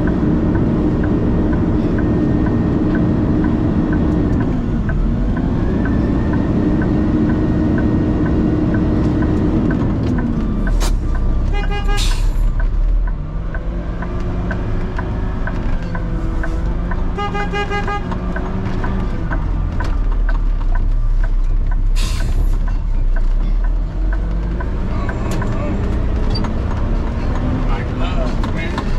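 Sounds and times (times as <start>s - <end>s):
truck diesel engine running: 0.0s - 28.9s
air brake hiss: 22.0s - 22.5s.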